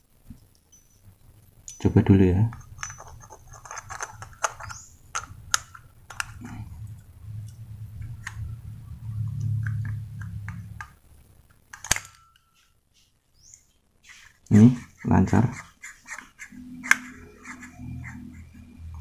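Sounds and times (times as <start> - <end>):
low rubbing rumble: 4.9 - 11.5.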